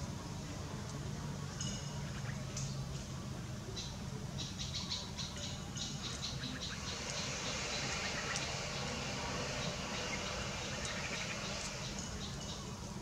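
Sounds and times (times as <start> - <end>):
steady low hum: 0.0 - 13.0
small bird chirping: 3.8 - 12.7.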